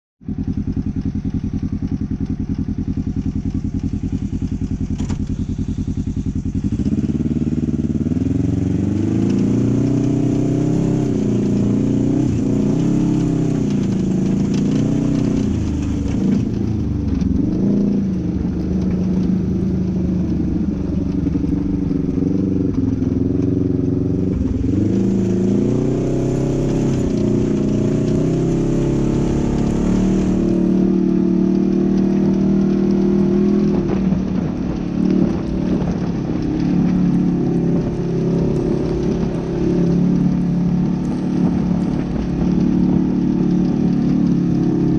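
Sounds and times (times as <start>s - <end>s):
engine idling and revving: 0.2s - 44.9s.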